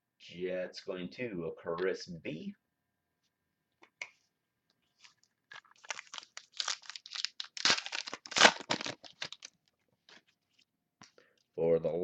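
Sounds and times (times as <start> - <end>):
wrapper crinkling and tearing: 5.0 - 9.6.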